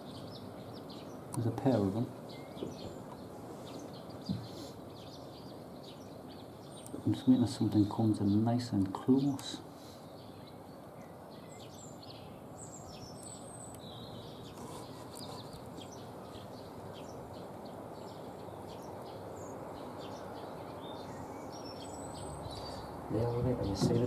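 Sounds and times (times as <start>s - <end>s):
small songbirds chirping: 0.0s - 24.0s
steady background noise: 0.0s - 24.0s.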